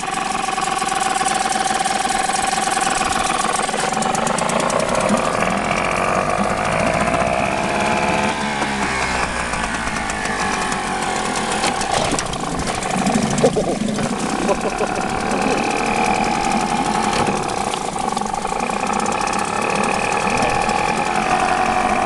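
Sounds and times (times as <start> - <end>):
outboard motor running: 0.0 - 22.0.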